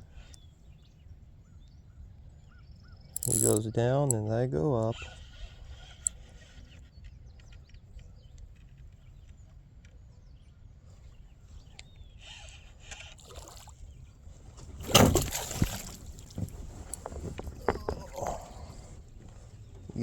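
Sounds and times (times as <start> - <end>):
small clicks: 3.2 - 4.2
faint water sounds: 12.4 - 20.0
rustling: 14.5 - 20.0.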